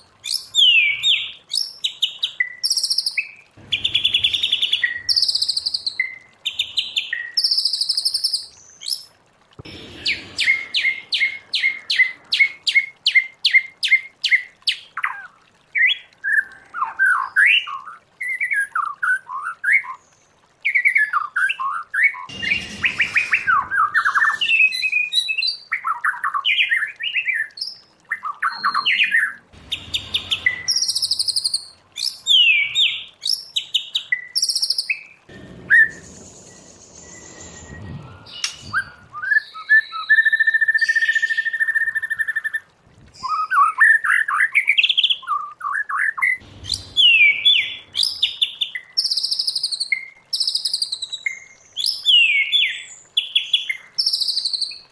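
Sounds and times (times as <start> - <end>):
bird singing varied song: 0.0 - 42.6, 43.2 - 54.9.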